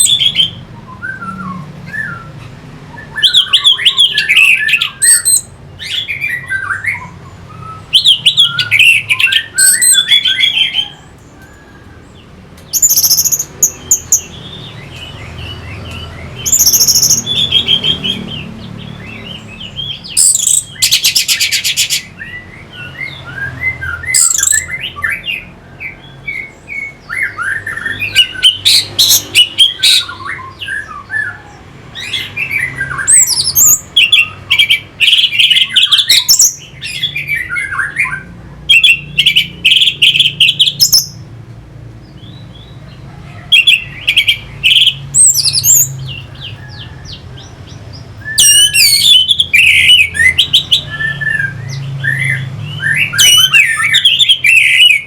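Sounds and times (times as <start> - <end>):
thrush singing: 43.5 - 55.0.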